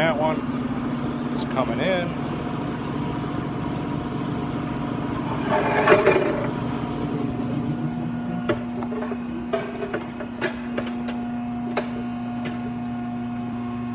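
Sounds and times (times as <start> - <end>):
hydraulic press motor humming: 0.0 - 13.9.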